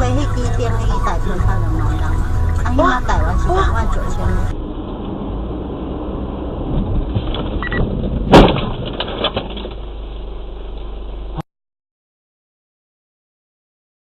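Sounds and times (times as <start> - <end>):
vehicle engine and road rumble: 0.0 - 11.4
loud collision bang: 6.6 - 9.8
knocks and rattles: 6.7 - 9.9.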